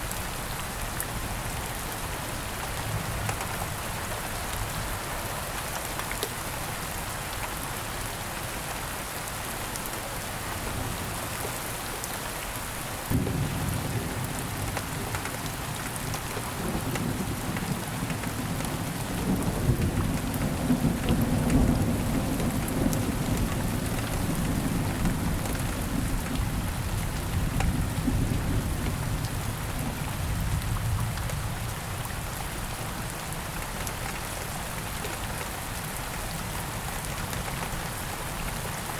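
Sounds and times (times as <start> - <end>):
steady rain: 0.0 - 38.9
thunder rumbling: 13.1 - 15.2.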